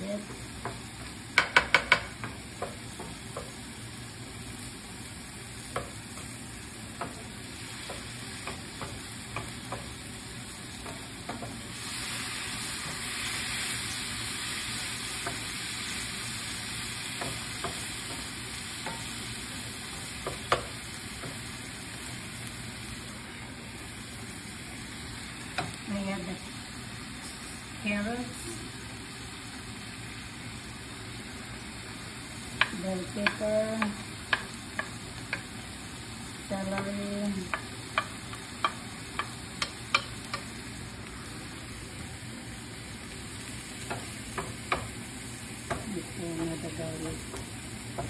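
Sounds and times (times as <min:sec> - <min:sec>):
food sizzling in oil: 0:00.0 - 0:48.0
wooden spatula knocking on pan: 0:00.2 - 0:03.6, 0:05.7 - 0:06.3, 0:07.8 - 0:10.0, 0:10.8 - 0:11.6, 0:17.2 - 0:19.1, 0:20.2 - 0:21.4, 0:32.6 - 0:35.5, 0:36.8 - 0:40.5, 0:43.9 - 0:45.0.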